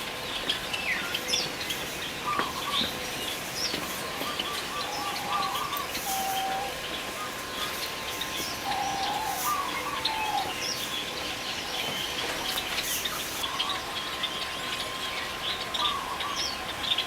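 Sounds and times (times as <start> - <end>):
birds whistling calls: 0.2 - 17.0.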